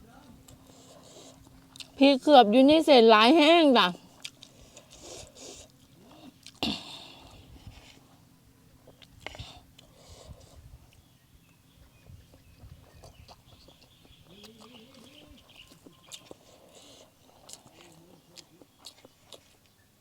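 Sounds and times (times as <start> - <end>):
person chewing noodles: 0.4 - 2.0, 4.0 - 8.2, 8.8 - 11.0, 12.1 - 19.9
bird calling: 11.0 - 19.1.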